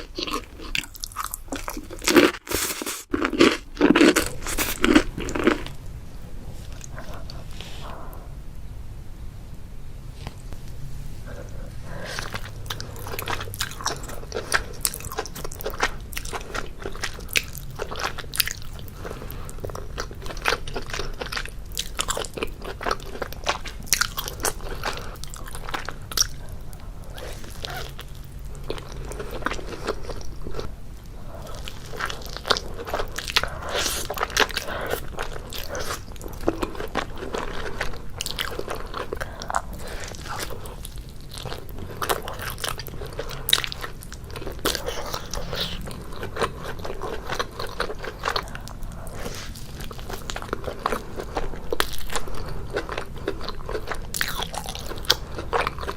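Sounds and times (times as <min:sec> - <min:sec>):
chewing pizza: 0:00.0 - 0:05.8, 0:06.5 - 0:08.3, 0:11.2 - 0:55.9
crunching pizza crust: 0:00.0 - 0:05.8.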